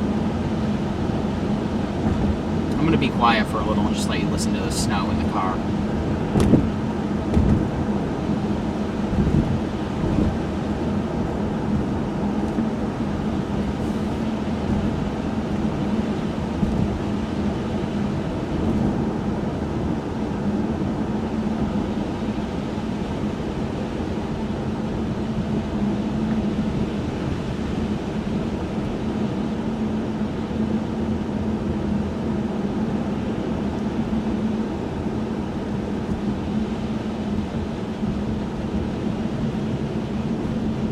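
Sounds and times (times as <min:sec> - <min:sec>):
car engine drone: 0:00.0 - 0:16.9.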